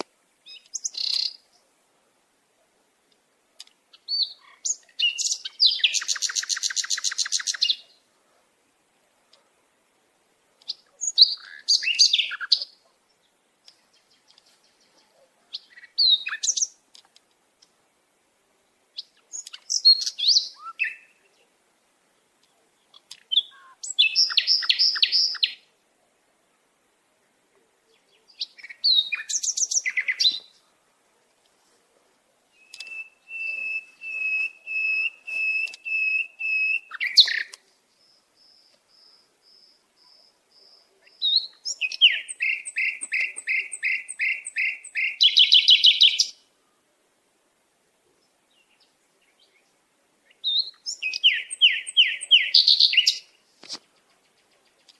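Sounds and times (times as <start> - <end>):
songbird singing rapid high notes: 23.1 - 25.6, 32.5 - 46.4, 50.4 - 53.4.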